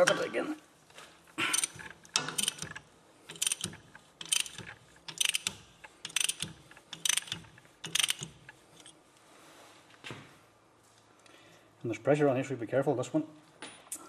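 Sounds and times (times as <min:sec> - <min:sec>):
ratchet wrench clicking: 0:01.4 - 0:08.9.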